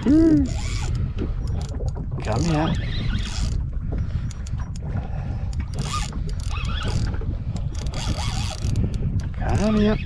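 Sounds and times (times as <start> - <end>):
reel clicks: 0.1 - 10.0
fishing reel drag zipping: 0.4 - 1.0, 2.4 - 3.6, 5.8 - 8.8.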